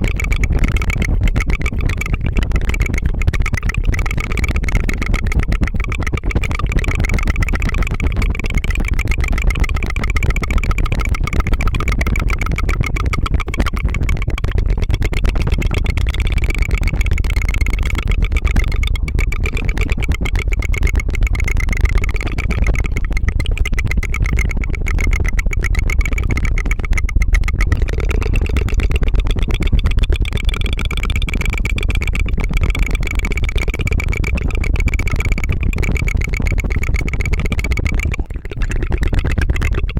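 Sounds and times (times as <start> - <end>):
rolled tongue trill: 0.0 - 39.9.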